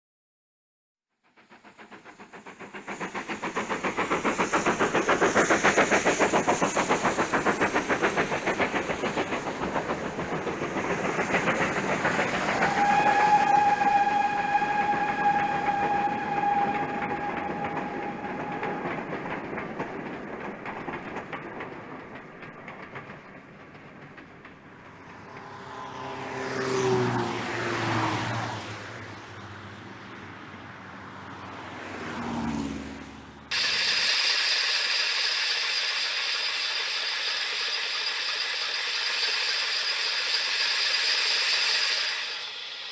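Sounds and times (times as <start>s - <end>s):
model steam locomotive exhaust beats: 1.2s - 32.8s, 33.5s - 42.9s
steam whistle: 12.5s - 19.1s, 33.5s - 42.9s.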